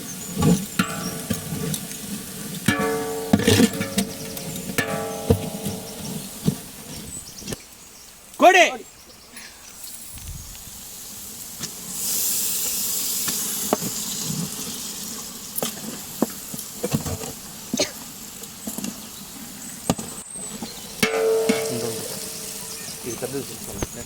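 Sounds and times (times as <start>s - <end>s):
chicken sizzling in oil: 0.0s - 7.4s, 10.7s - 24.0s
sharp clinks and knocks: 2.7s - 7.2s.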